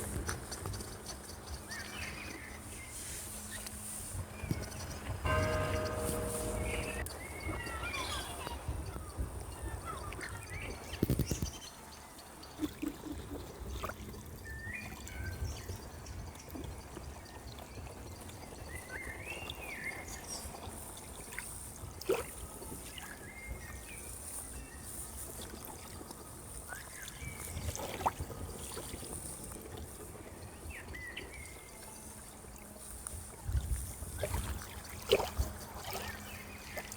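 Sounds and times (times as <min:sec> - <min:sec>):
sharp knocks: 0:05.3 - 0:07.0.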